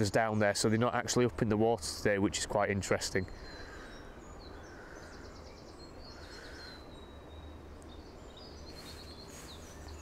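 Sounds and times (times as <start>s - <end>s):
songbirds chirping: 0.0s - 10.0s
bird trill: 3.2s - 10.0s.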